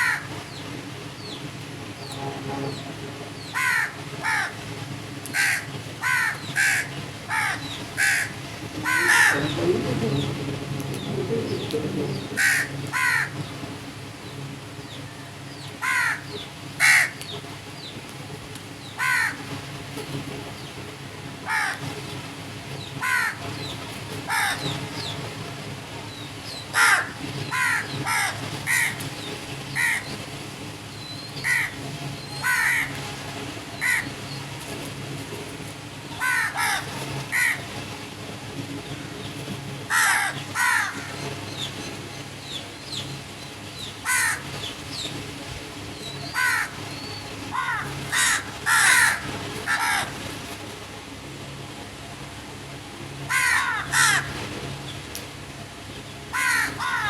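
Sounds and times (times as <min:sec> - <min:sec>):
crows cawing: 0:00.0 - 0:00.4, 0:03.4 - 0:04.6, 0:05.2 - 0:13.5, 0:15.8 - 0:17.2, 0:19.0 - 0:19.5, 0:21.4 - 0:21.9, 0:23.0 - 0:23.5, 0:24.3 - 0:25.2, 0:26.7 - 0:29.1, 0:29.7 - 0:30.1, 0:31.4 - 0:31.8, 0:32.4 - 0:33.0, 0:33.8 - 0:34.2, 0:36.2 - 0:37.8, 0:39.9 - 0:41.2, 0:44.0 - 0:44.7, 0:46.2 - 0:46.8, 0:47.5 - 0:50.4, 0:53.3 - 0:54.5, 0:56.3 - 0:57.0
low background hum: 0:00.0 - 0:57.0.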